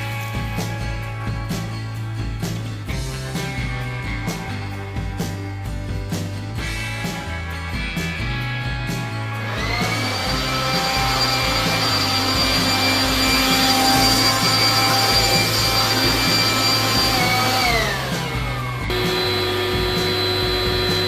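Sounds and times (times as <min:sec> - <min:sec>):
high-speed electric motor whining: 0:09.4 - 0:21.0.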